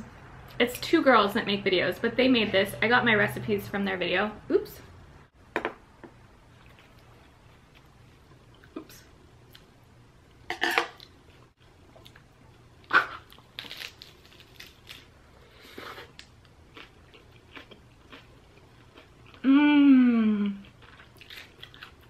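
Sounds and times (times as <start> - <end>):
soft chewing: 6.5 - 9.7, 15.6 - 19.5, 20.4 - 22.0
lettuce crunching: 13.2 - 15.1
person humming: 19.4 - 20.6.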